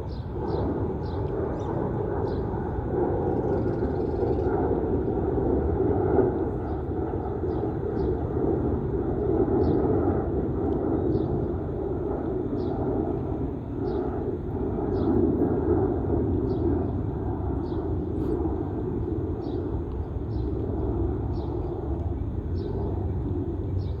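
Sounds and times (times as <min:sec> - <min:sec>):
jet engine rumble: 0:00.0 - 0:24.0.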